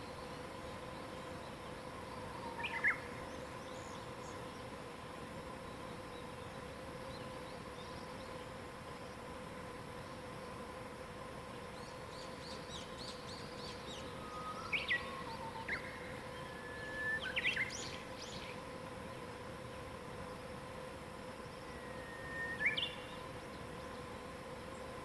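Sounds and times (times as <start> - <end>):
songbirds singing: 0.0 - 4.8, 11.6 - 18.7, 21.4 - 25.0
steady background hiss: 0.0 - 25.0.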